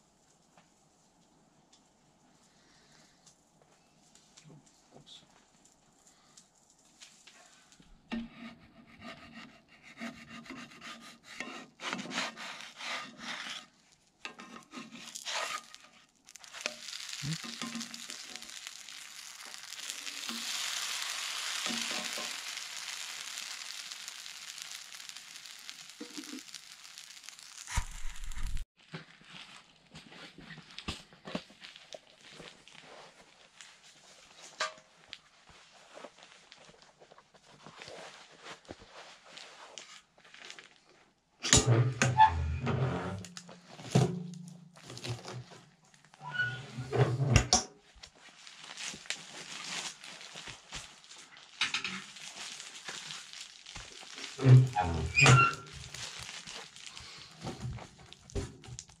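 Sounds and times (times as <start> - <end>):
food sizzling in a skillet: 14.6 - 28.7, 48.6 - 59.0.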